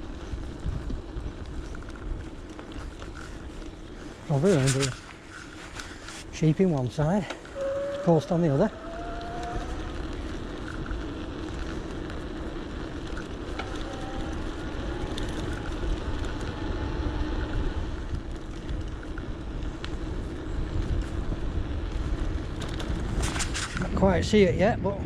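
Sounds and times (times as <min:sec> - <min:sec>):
tyre and road noise: 0:00.0 - 0:25.0
wind buffeting microphone: 0:00.0 - 0:25.0
faint ticks: 0:18.2 - 0:20.0.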